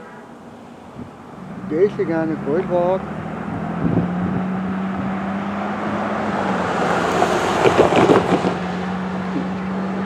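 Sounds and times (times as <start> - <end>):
wind buffeting microphone: 0.9 - 1.7, 3.2 - 9.7.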